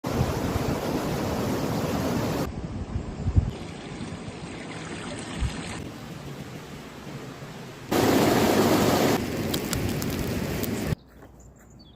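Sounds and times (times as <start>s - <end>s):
wind buffets on microphone: 0.1s - 3.6s
running water rushing: 3.5s - 11.0s.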